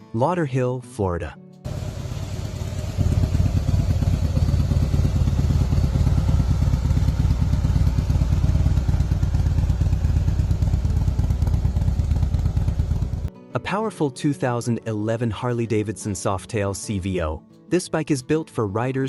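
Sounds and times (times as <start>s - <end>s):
motorcycle engine running steadily: 1.7s - 13.3s.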